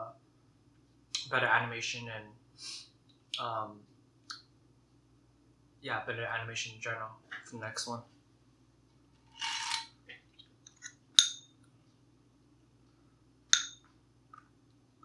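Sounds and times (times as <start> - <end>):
tableware clinks: 10.7 - 11.5.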